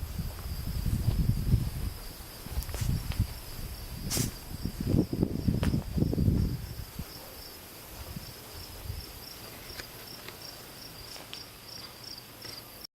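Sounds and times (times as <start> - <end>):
low rumbling thumps: 0.0 - 7.2
crickets chirping: 0.0 - 12.9.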